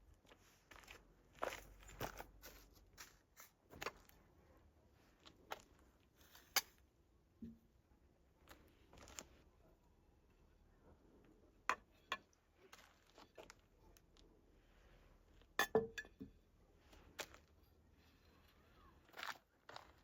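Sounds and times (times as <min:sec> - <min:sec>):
kitchenware clinking and knocking: 0:15.6 - 0:16.3.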